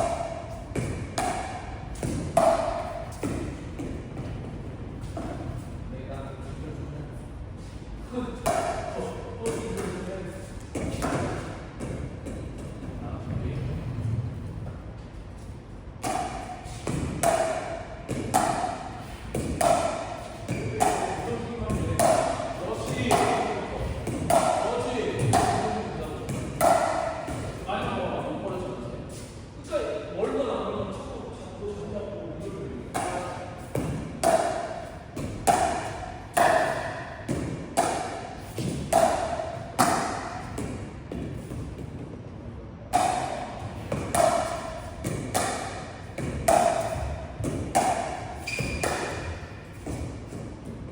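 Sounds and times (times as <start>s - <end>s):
paddles hitting plastic ball: 16.0s - 23.4s, 33.0s - 41.8s, 42.9s - 50.5s.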